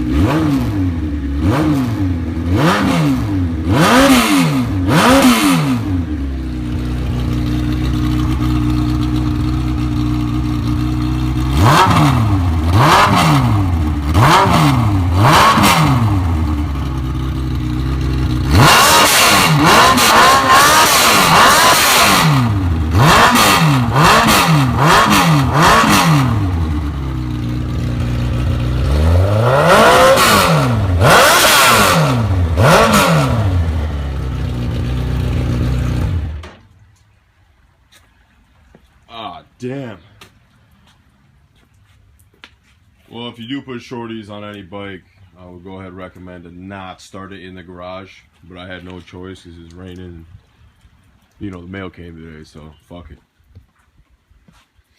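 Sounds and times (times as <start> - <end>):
motorcycle engine revving: 0.0 - 36.6.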